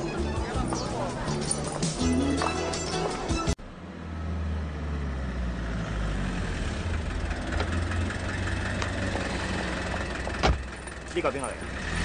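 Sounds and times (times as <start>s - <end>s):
car engine low rumble: 3.6s - 12.0s.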